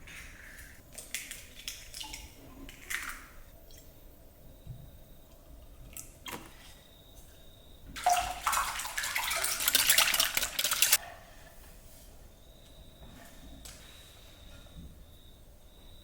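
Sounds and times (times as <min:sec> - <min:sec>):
water running from a tap: 0:08.0 - 0:11.0.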